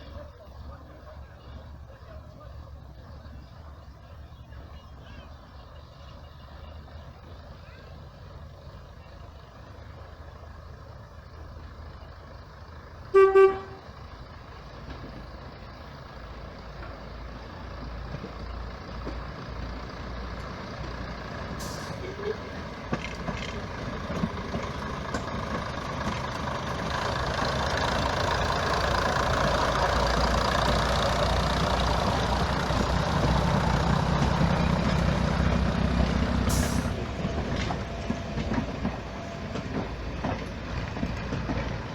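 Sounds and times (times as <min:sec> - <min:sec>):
train rumbling past: 0:00.0 - 0:41.9
train whistle toot: 0:13.1 - 0:13.8.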